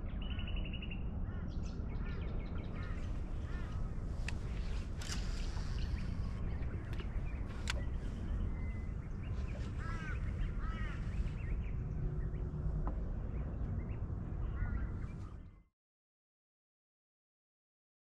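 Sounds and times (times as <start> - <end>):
low rumble of wind and water: 0.0 - 15.7
birds calling: 1.3 - 15.6
sharp clicks: 4.2 - 7.9.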